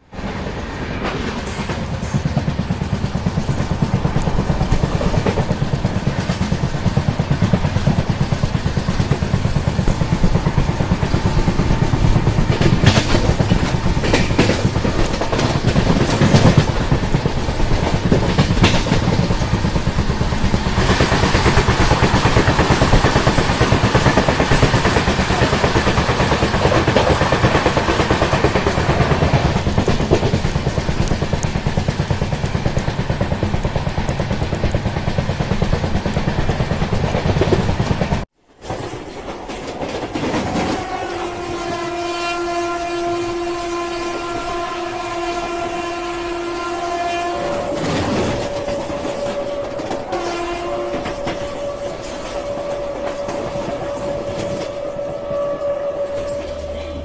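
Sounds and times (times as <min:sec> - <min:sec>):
train wheels rumbling on rails: 0:00.0 - 0:57.0
sharp wheel clacks: 0:01.1 - 0:38.2.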